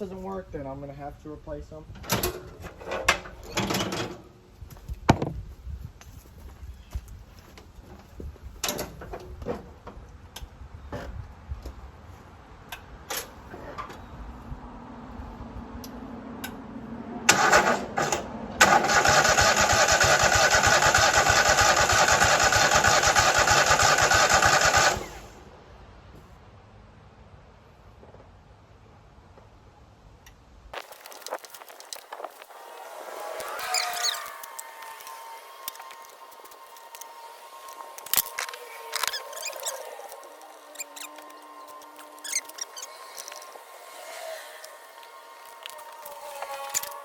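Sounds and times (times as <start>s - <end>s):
engine starter cranking: 17.3s - 25.3s.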